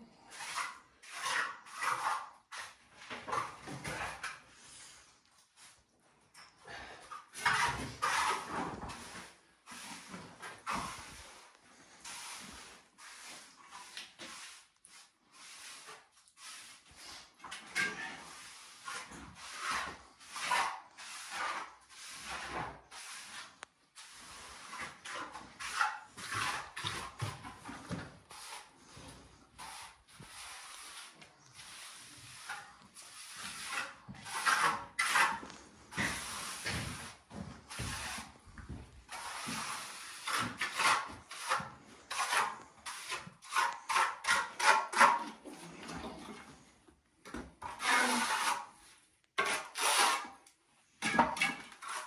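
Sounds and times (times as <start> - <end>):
hand tool scraping rough surface: 0.2 - 5.0, 7.0 - 46.7, 47.6 - 52.0.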